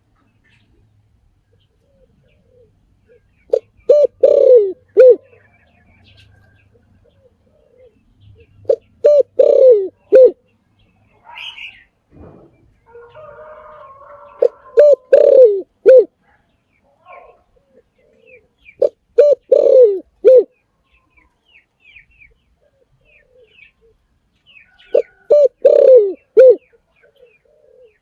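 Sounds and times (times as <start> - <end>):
dove cooing: 1.5 - 5.7, 6.4 - 10.4, 12.9 - 16.4, 17.0 - 20.6, 22.6 - 24.0, 24.7 - 28.0.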